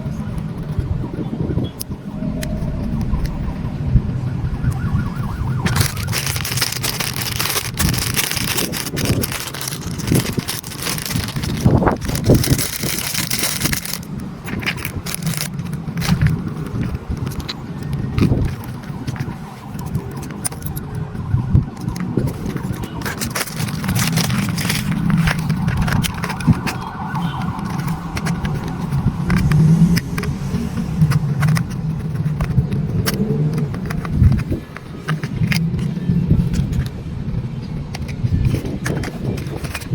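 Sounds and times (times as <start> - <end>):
clicks and scrapes: 5.5 - 21.0, 21.7 - 37.0, 37.9 - 39.9
toy electric motors whining: 5.6 - 14.1.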